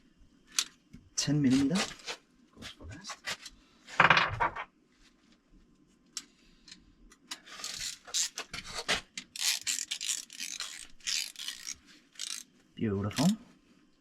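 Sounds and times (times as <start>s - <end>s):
ratchet wrench clicking: 9.4s - 12.4s.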